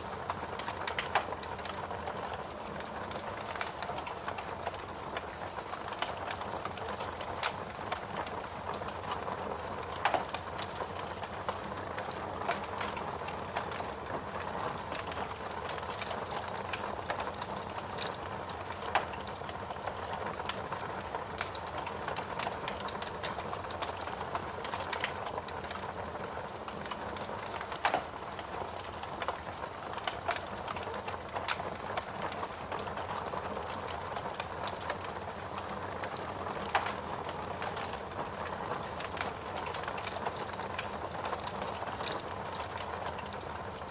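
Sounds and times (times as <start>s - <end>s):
wood fire crackling: 0.0s - 43.9s
loud pops from fire: 26.8s - 31.6s, 34.6s - 43.3s.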